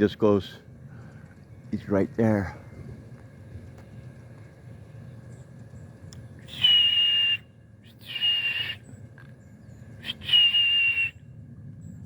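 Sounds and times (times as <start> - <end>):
short breathy whistles: 6.5 - 8.8, 10.0 - 11.2.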